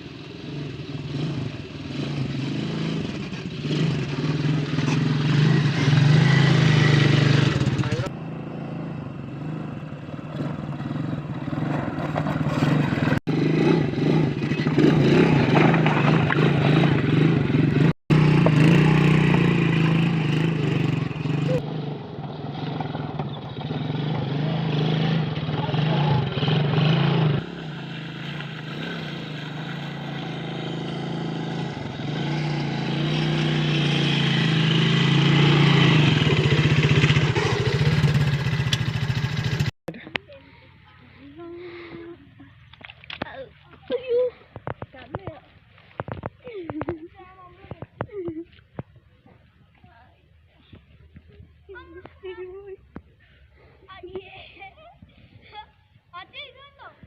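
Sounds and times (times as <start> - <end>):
quad bike engine revving: 0.0 - 42.4.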